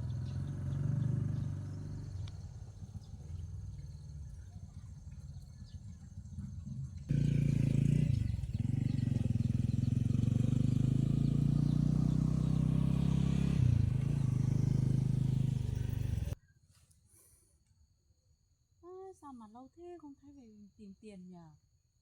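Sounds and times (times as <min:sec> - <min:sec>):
motorbike engine running: 0:00.0 - 0:16.4.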